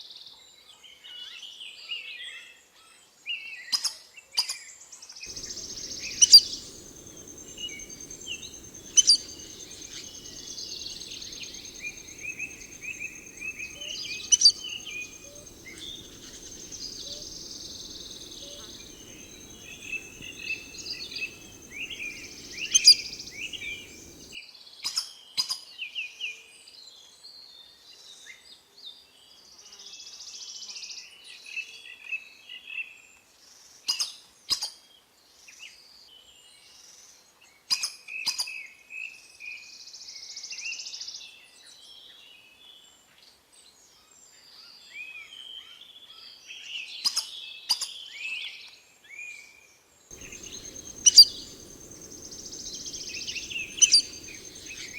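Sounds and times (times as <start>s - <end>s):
sharp doubled bird call: 5.3s - 24.4s, 50.2s - 54.9s
wild birds chirping: 5.3s - 24.4s, 50.1s - 54.9s.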